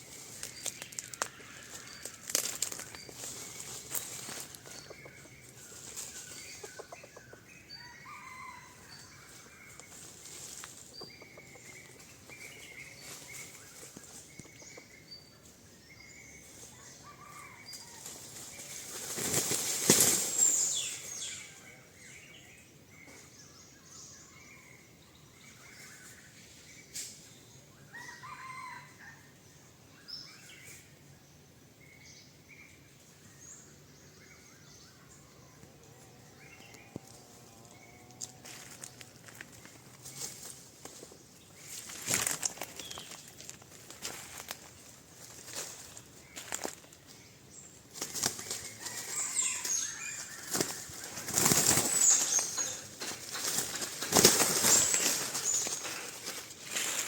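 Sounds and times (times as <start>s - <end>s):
junglefowl wings beating: 50.3s - 55.8s.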